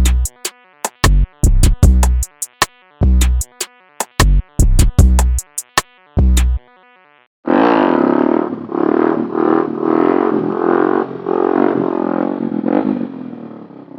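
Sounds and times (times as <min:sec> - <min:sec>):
music beat: 0:00.0 - 0:07.1
motorcycle engine revving: 0:07.4 - 0:13.9.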